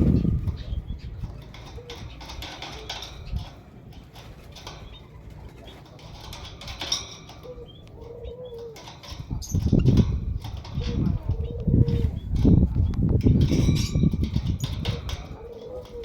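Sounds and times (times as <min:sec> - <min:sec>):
low coo-like bird notes: 0:00.0 - 0:16.0
small clicks and rustles: 0:00.0 - 0:16.0.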